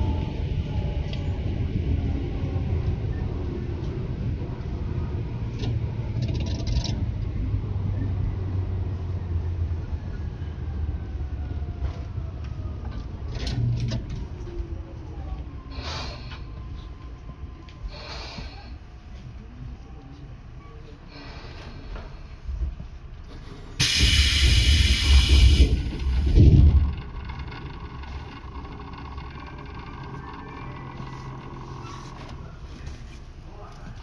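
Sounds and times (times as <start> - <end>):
electric train rumbling: 0.0 - 34.0
short hisses: 23.4 - 25.9
faint falling tones: 25.8 - 32.6.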